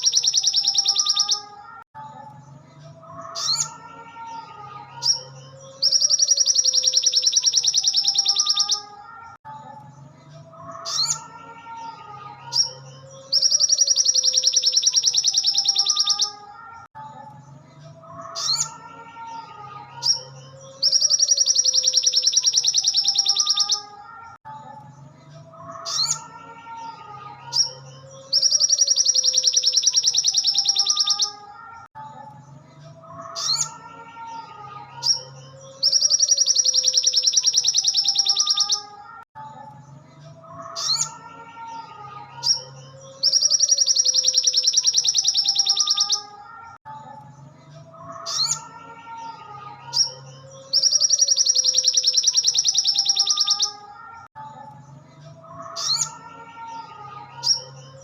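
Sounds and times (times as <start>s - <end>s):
bird singing high trills: 0.0s - 1.6s, 5.0s - 9.0s, 12.4s - 16.5s, 20.0s - 24.0s, 27.5s - 31.8s, 35.0s - 39.0s, 42.4s - 46.4s, 49.8s - 54.1s.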